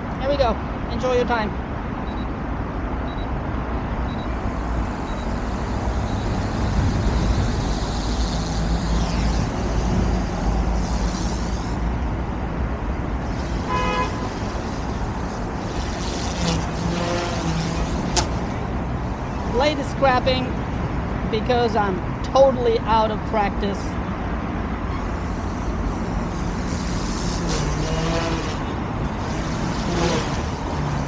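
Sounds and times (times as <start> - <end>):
rc helicopter rotor whirring: 4.4 - 11.8, 13.2 - 19.8, 25.1 - 31.0.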